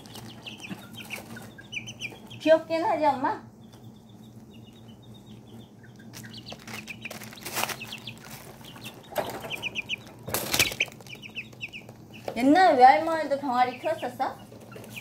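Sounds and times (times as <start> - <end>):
chicks peeping: 0.0 - 15.0
rustling bursts: 6.2 - 11.2.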